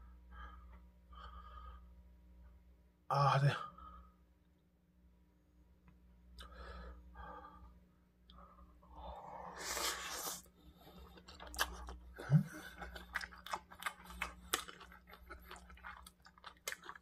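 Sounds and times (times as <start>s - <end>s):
wet chewing and lip-smacking: 10.0s - 17.0s.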